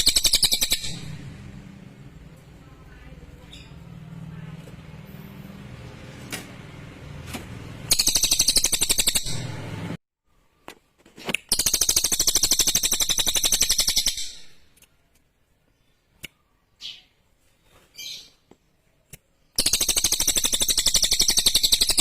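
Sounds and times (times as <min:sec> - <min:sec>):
songbird rattling trills: 0:00.0 - 0:01.1, 0:07.9 - 0:09.5, 0:11.5 - 0:14.6, 0:19.6 - 0:22.0
bird chips: 0:00.0 - 0:01.2, 0:07.8 - 0:09.6, 0:11.4 - 0:14.8, 0:19.2 - 0:22.0.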